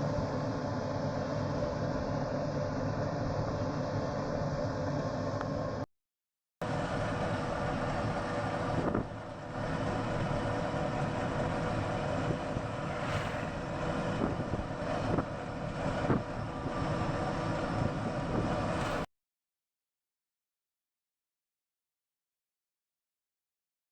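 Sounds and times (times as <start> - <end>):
moving vehicle noise: 6.6 - 19.1
wind on microphone: 8.7 - 9.2, 11.2 - 19.1.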